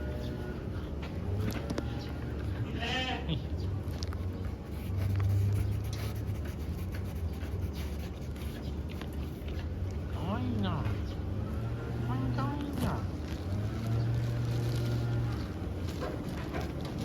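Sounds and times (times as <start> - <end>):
goat bleating: 2.6 - 3.5.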